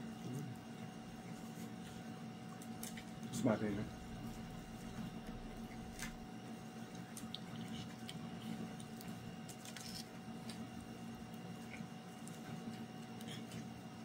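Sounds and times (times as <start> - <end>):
low hum: 3.7 - 6.3
mouth chewing clicks and smacks: 7.0 - 9.2.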